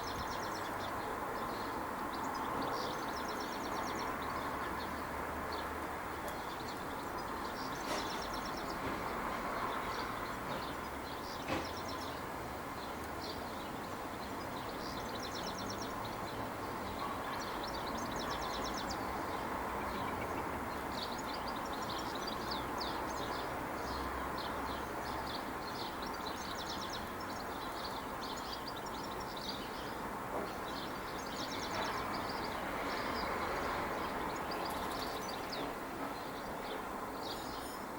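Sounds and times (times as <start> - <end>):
small birds chirping: 9.6 - 37.9.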